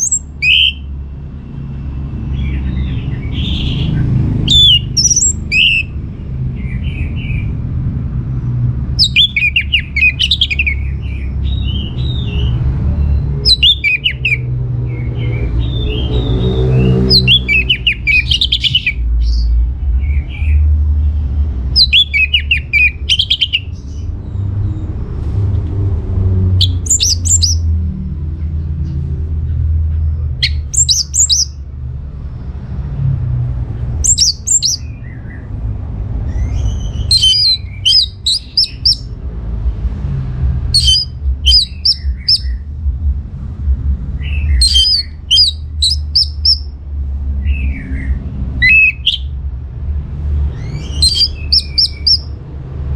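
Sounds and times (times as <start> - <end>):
thrush singing: 0.0 - 0.9, 2.4 - 6.0, 8.9 - 19.0, 21.7 - 23.8, 26.6 - 27.7, 30.4 - 31.7, 34.0 - 35.4, 36.4 - 39.2, 40.7 - 42.6, 44.2 - 46.8, 47.4 - 49.4, 50.4 - 52.4
steady low rumble: 0.0 - 52.9.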